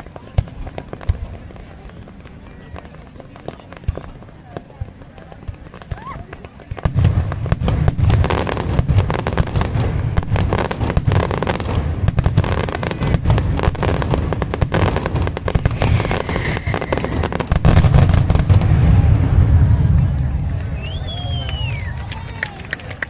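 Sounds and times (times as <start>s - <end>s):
fireworks bangs and crackles: 0.0s - 23.0s
deep rumble: 15.6s - 21.7s.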